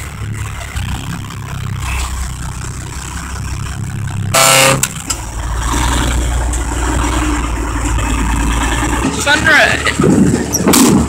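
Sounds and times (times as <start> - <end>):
diesel truck engine idling: 0.0 - 11.0
truck horn blast: 4.3 - 7.6.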